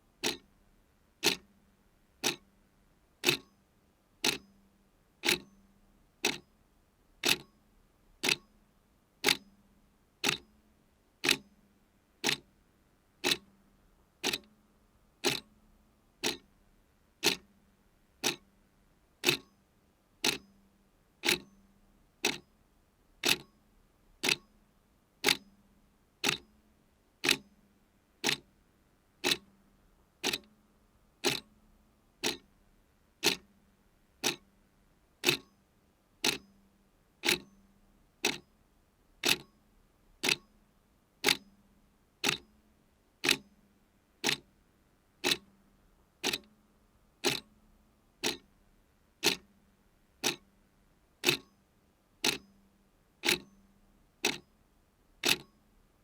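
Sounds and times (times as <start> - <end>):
clock ticking: 0.2 - 0.4, 1.2 - 1.4, 2.2 - 2.4, 3.2 - 3.5, 4.2 - 4.4, 7.2 - 7.5, 8.2 - 8.4, 10.2 - 10.4, 11.2 - 11.4, 12.2 - 12.4, 13.2 - 13.4, 14.2 - 14.5, 15.2 - 15.5, 16.2 - 16.4, 17.2 - 17.4, 18.2 - 18.4, 19.2 - 19.5, 20.2 - 20.4, 21.2 - 21.5, 23.2 - 23.5, 24.2 - 24.4, 26.2 - 26.4, 27.2 - 27.4, 28.2 - 28.4, 29.2 - 29.5, 30.2 - 30.5, 31.2 - 31.5, 32.2 - 32.5, 33.2 - 33.5, 34.2 - 34.4, 35.2 - 35.5, 36.2 - 36.4, 37.2 - 37.5, 38.2 - 38.4, 39.2 - 39.5, 40.2 - 40.5, 41.2 - 41.4, 42.2 - 42.4, 43.2 - 43.4, 44.2 - 44.4, 45.2 - 45.5, 46.2 - 46.5, 47.2 - 47.5, 48.2 - 48.5, 49.2 - 49.5, 50.2 - 50.4, 51.2 - 51.5, 52.2 - 52.4, 53.2 - 53.5, 54.2 - 54.4, 55.2 - 55.5.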